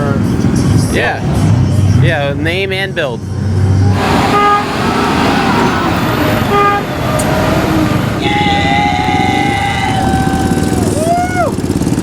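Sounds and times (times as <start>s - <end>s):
rumble of engines: 0.0s - 12.0s
vehicle horns honking: 3.9s - 10.0s.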